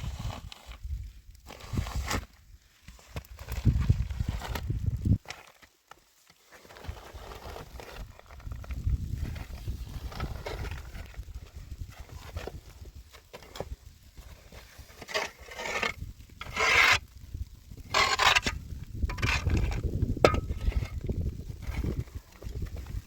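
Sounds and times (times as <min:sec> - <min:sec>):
rasping scrapes: 0:14.8 - 0:17.1, 0:17.9 - 0:21.0.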